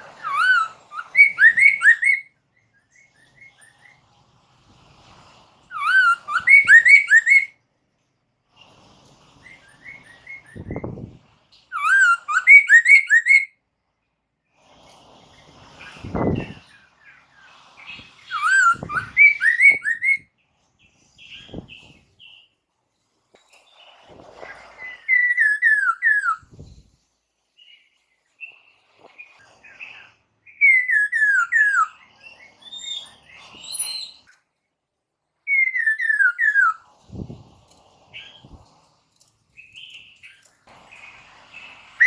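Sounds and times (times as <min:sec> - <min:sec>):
scratchy bird chatter: 0:00.0 - 0:02.2, 0:15.2 - 0:20.2, 0:35.8 - 0:42.0
bird singing whistled phrases: 0:00.1 - 0:02.3, 0:05.7 - 0:07.5, 0:11.7 - 0:13.5, 0:18.3 - 0:20.3, 0:24.8 - 0:26.5, 0:30.5 - 0:32.0, 0:35.5 - 0:36.8.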